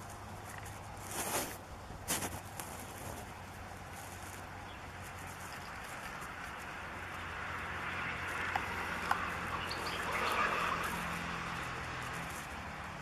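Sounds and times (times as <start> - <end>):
faint bird chirps: 9.5 - 11.0.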